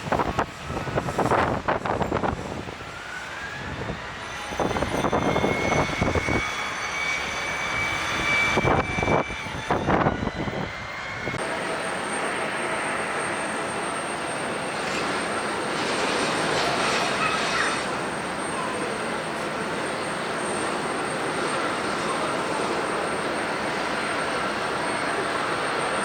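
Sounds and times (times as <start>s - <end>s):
wind buffeting microphone: 0.0s - 13.3s
jet engines whining: 0.0s - 26.0s.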